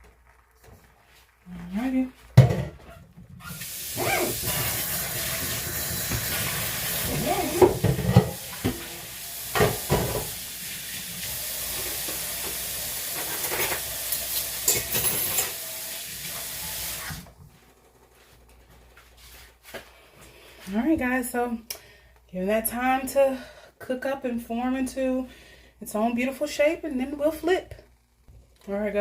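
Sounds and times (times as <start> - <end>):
eggs sizzling in a pan: 0.0 - 17.2.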